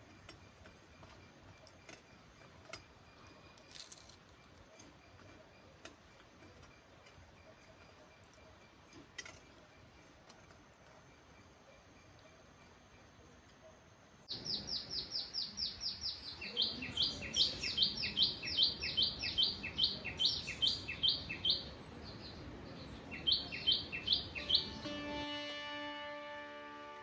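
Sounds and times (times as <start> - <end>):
bird chirping rapidly: 14.3 - 21.7, 23.1 - 24.8.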